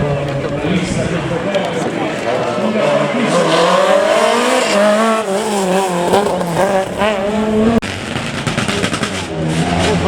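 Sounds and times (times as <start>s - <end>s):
rally car engine revving: 0.0s - 10.0s.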